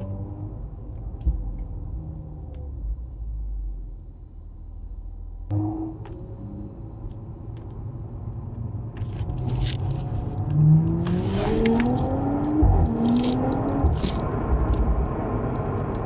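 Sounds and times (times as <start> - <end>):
car engine accelerating: 5.5 - 16.0
exhaust crackles: 9.0 - 16.0
exhaust thud: 9.2 - 15.4.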